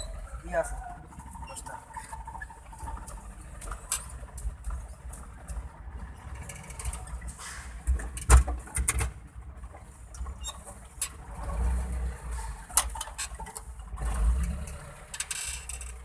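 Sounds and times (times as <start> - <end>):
truck engine rumbling: 0.0 - 16.0
sharp clicks and knocks: 1.6 - 11.2.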